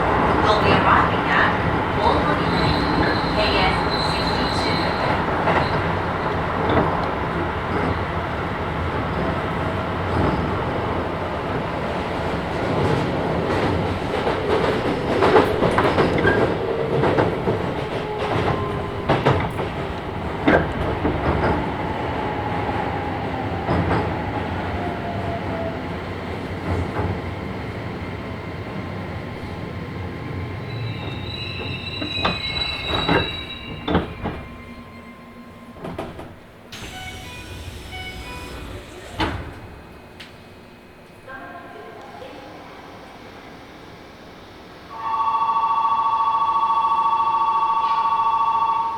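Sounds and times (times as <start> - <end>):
train motor tones falling in pitch: 36.7 - 39.9.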